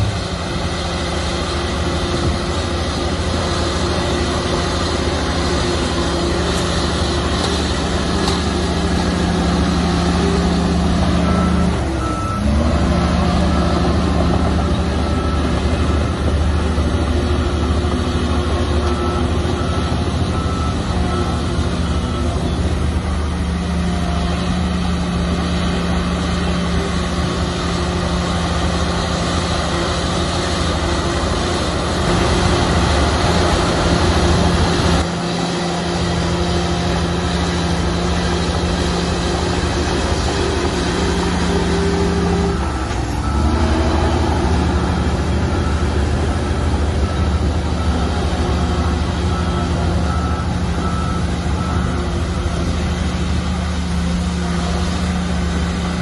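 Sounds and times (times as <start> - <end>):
heavy diesel engine running: 0.0 - 56.0
faint high reversing beeps: 41.2 - 52.8.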